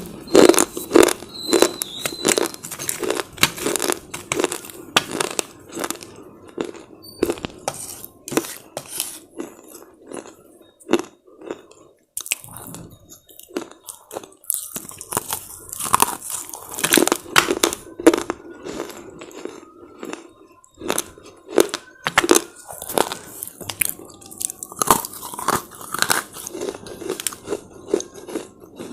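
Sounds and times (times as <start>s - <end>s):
crunchy chewing: 0.3s - 28.9s.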